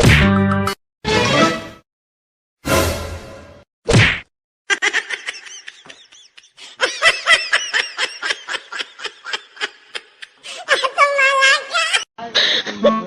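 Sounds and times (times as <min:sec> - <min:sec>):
high-pitched laughter: 0:04.7 - 0:12.1.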